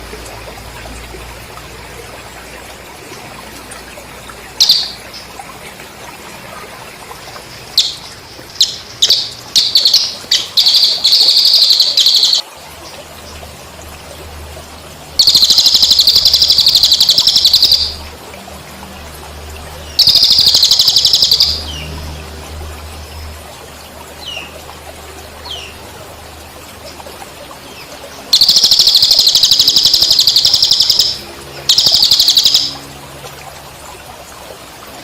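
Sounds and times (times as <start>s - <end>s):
trickling water: 0.0s - 35.0s
bird chirping and trilling: 4.4s - 5.4s, 7.5s - 12.4s, 15.2s - 18.1s, 19.8s - 21.9s, 27.7s - 32.9s.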